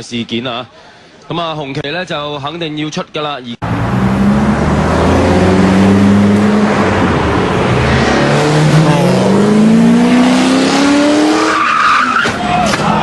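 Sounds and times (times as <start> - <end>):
race car accelerating: 3.6 - 12.2.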